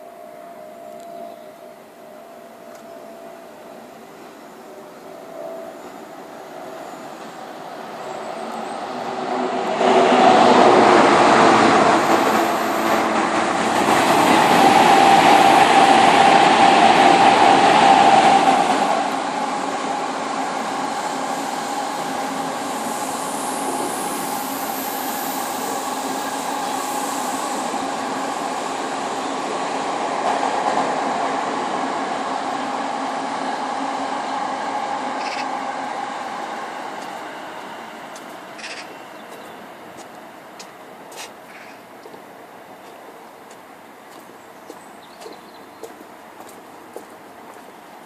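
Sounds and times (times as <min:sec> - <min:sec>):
train passing with whine: 0:00.0 - 0:48.0
train rumble: 0:00.0 - 0:48.0.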